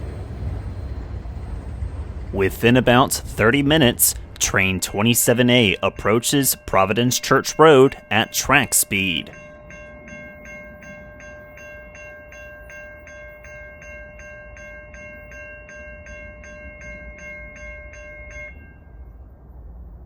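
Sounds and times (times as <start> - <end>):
low rumble: 0.0 - 11.9
railroad crossing bell ringing: 2.0 - 19.6.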